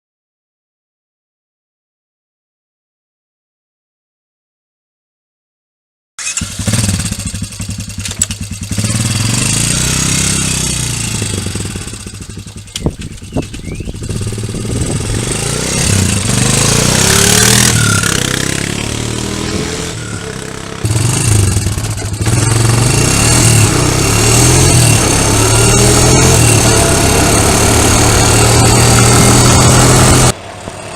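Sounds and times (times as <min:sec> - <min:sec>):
quad bike engine revving: 0:06.2 - 0:30.9
sharp clicks: 0:12.7 - 0:13.7.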